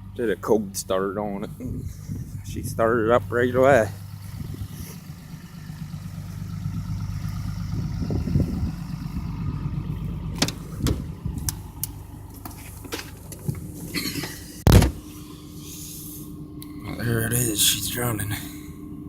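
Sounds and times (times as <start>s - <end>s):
diesel truck engine idling: 0.0s - 19.0s
loud thump: 10.4s - 11.4s, 14.6s - 15.0s.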